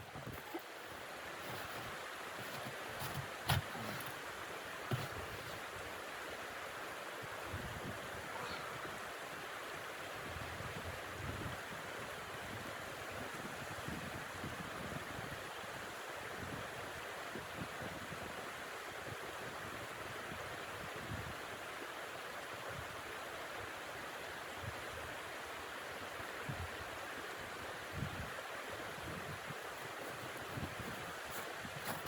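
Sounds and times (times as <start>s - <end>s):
wind gusts buffeting microphone: 0.0s - 1.8s, 29.0s - 32.0s
rushing blizzard wind: 29.0s - 32.0s.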